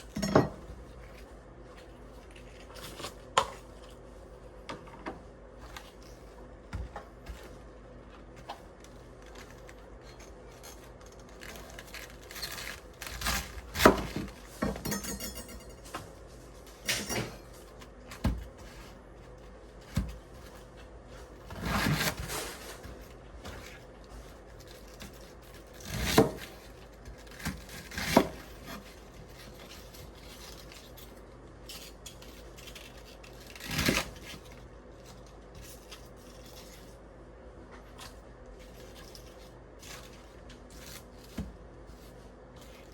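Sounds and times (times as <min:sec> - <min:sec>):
dishes and utensils clinking: 0:14.6 - 0:16.0.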